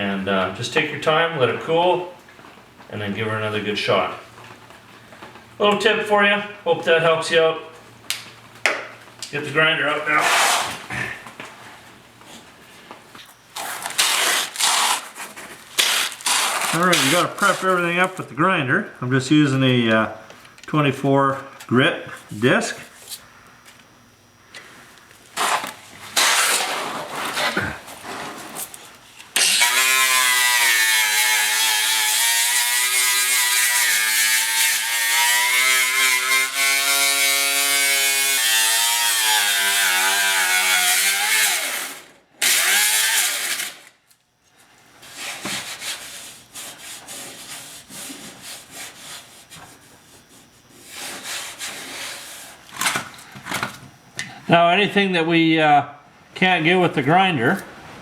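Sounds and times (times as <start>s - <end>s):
rubbing and handling sounds: 10.1s - 18.4s, 24.6s - 29.4s, 44.5s - 53.0s
angle grinder grinding steel: 13.6s - 18.1s, 29.4s - 43.9s.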